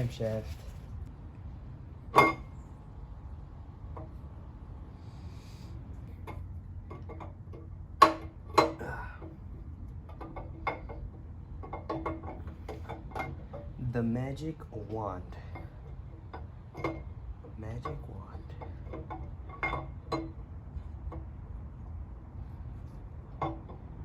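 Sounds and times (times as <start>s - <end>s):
metal tools clinking and clanking: 17.8s - 20.3s.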